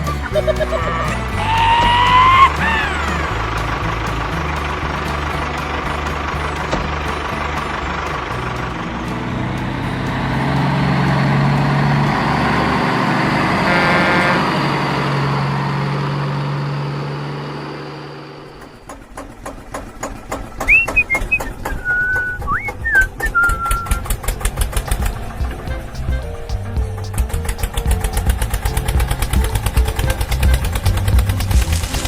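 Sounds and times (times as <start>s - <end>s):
vehicle engine running: 0.0s - 32.0s
rapid clicking: 18.6s - 32.0s
whistle-like chirps: 20.6s - 27.2s.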